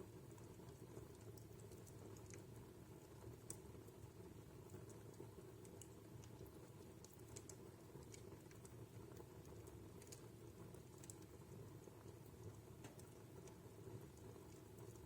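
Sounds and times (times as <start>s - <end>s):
low rumble of burning: 0.0s - 15.0s
fire crackling pops: 3.4s - 15.0s.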